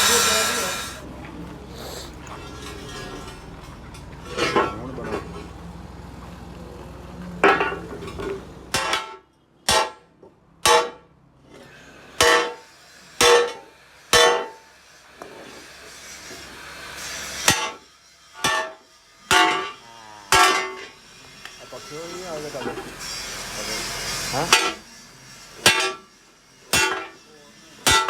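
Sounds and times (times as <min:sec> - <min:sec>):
hammer striking metal: 0:08.8 - 0:10.0, 0:10.6 - 0:11.0, 0:12.2 - 0:12.6, 0:13.2 - 0:13.6, 0:14.2 - 0:14.6, 0:18.4 - 0:20.9, 0:25.6 - 0:26.0, 0:26.7 - 0:27.2.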